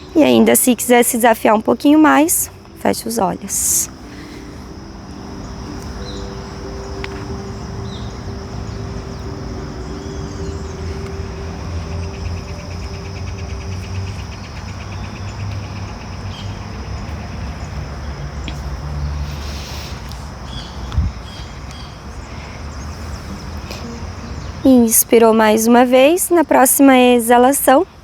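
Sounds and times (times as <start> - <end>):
fast rhythmic insect trill: 0.0 - 20.0
high-pitched insect drone: 0.0 - 20.6, 22.1 - 28.0
distant traffic rumble: 0.0 - 28.0.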